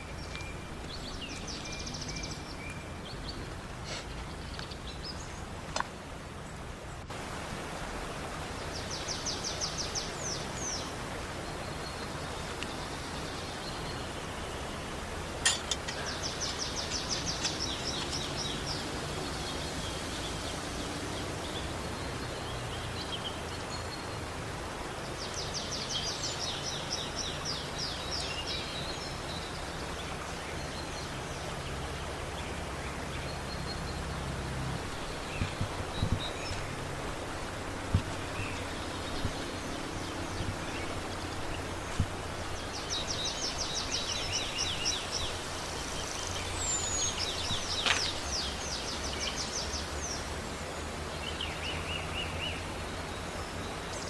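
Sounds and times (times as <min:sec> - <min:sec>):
songbird trilling: 0:00.0 - 0:06.7, 0:34.8 - 0:48.8
outdoor background rush: 0:00.0 - 0:54.0
small knocks: 0:15.4 - 0:16.0, 0:37.8 - 0:38.6.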